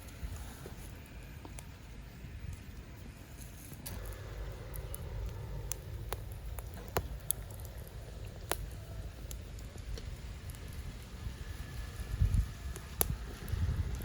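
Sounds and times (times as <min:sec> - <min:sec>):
low rumbling: 0:00.0 - 0:14.0
sharp clicks and snaps: 0:03.7 - 0:10.8, 0:12.7 - 0:14.0.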